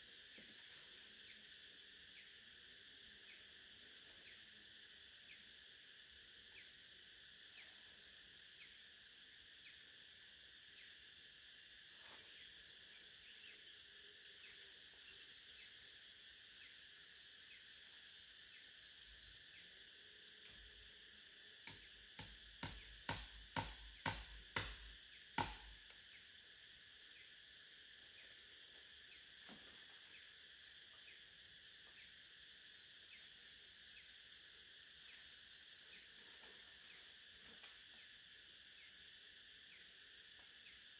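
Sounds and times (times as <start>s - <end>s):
insects chirring: 0.0s - 40.9s
sharp knocks: 21.7s - 25.8s.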